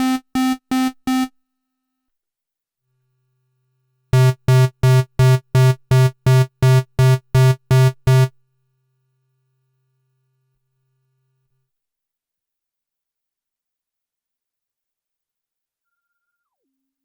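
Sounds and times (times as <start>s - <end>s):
synthesizer repeating low note: 4.2s - 8.3s.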